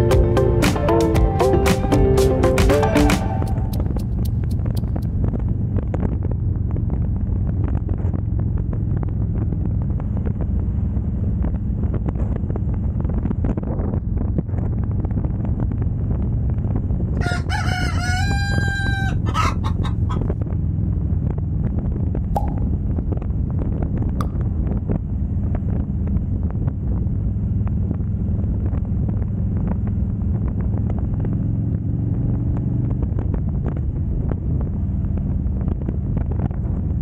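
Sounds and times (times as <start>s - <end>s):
motorcycle engine running: 0.0s - 17.2s
wind on microphone: 3.3s - 37.0s
rooster crowing: 17.2s - 20.2s.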